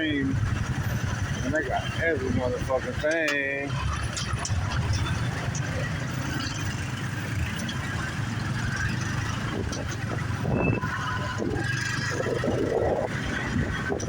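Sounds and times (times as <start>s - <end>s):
street traffic: 0.0s - 14.0s
wind rush: 7.8s - 14.0s.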